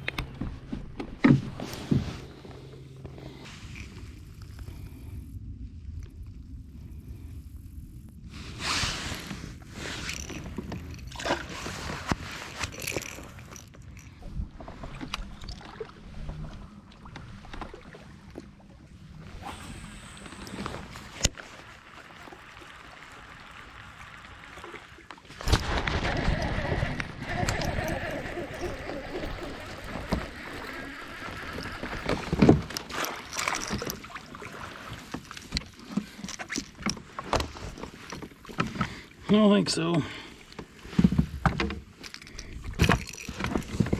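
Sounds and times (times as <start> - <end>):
kayak knocks: 0.0 - 2.3
water splashing around kayak: 0.0 - 5.2, 8.2 - 43.9.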